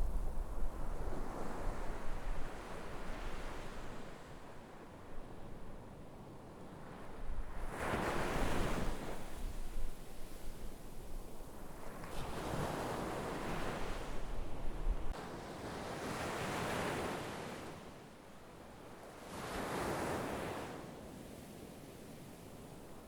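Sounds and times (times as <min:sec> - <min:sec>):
sea waves breaking on shore: 0:11.5 - 0:18.1, 0:19.1 - 0:22.8.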